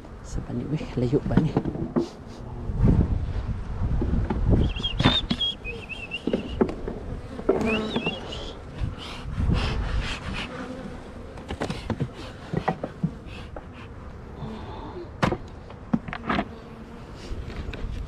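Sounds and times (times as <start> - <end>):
bees buzzing: 3.6 - 17.7
hive boxes knocking: 6.1 - 8.3.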